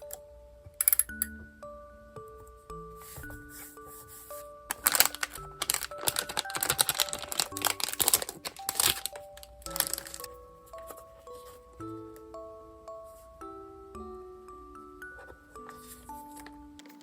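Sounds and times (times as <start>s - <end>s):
soft background music: 0.0s - 17.0s
paper crinkling and rustling: 3.3s - 11.6s, 15.6s - 17.0s.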